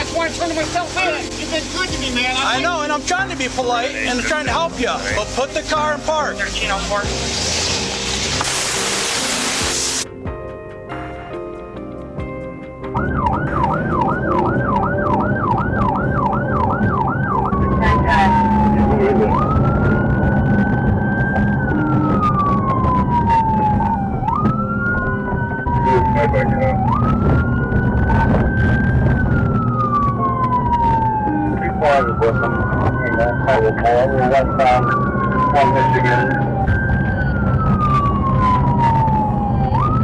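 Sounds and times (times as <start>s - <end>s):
car engine and road noise: 0.0s - 40.0s
police siren yelp and wail: 12.9s - 40.0s.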